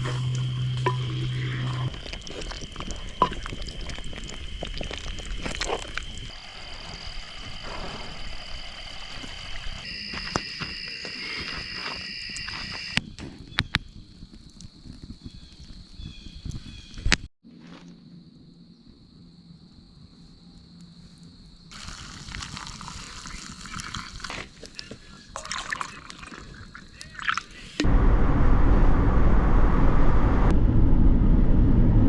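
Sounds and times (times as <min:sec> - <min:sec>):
low steady hum: 0:00.0 - 0:07.4
crickets singing: 0:00.0 - 0:17.1, 0:17.7 - 0:27.8.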